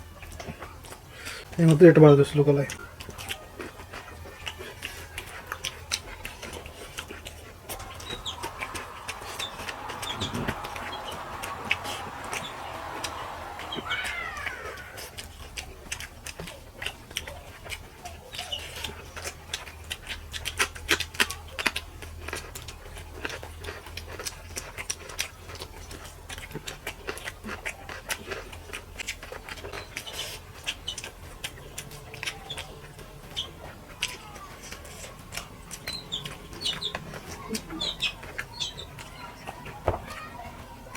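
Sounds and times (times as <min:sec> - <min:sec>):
chewing smacks: 0:00.0 - 0:40.9
fingers working wet food: 0:00.0 - 0:40.9
animal calls: 0:02.7 - 0:20.6
steady low hum: 0:05.4 - 0:16.9.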